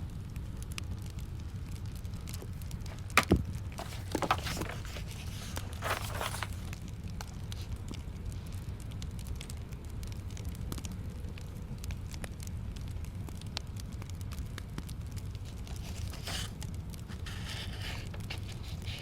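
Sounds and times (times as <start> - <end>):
wood fire crackling: 0.0 - 19.0
brief rustle: 3.8 - 6.7.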